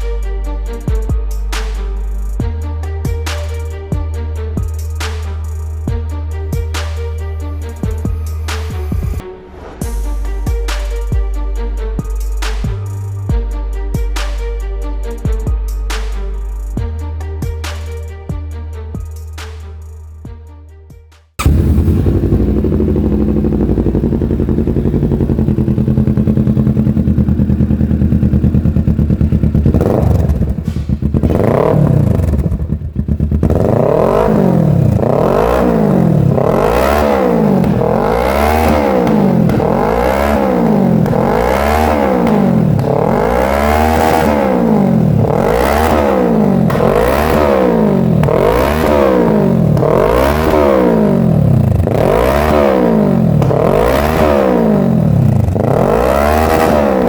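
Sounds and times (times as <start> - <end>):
motorcycle engine revving: 21.4 - 57.0.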